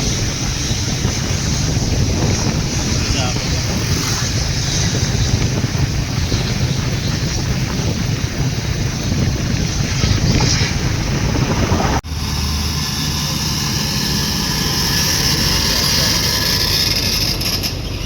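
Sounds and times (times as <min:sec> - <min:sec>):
wind buffeting microphone: 0:00.0 - 0:12.1
truck engine low rumble: 0:00.0 - 0:18.0.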